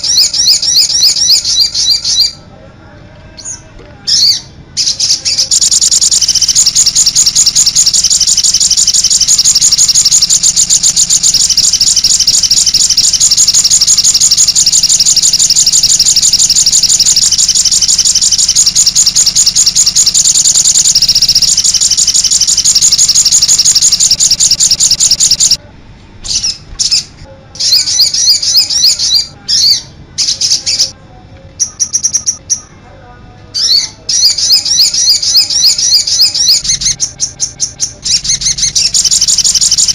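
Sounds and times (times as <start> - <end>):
songbird singing: 0.0 - 2.5, 3.3 - 25.6, 26.2 - 31.0, 31.6 - 32.8, 33.5 - 39.9.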